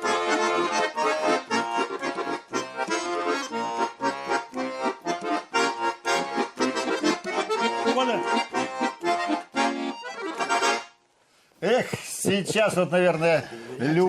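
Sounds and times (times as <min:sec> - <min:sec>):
bass accompaniment: 0:00.0 - 0:11.0
button accordion playing folk dance tune: 0:00.0 - 0:11.1.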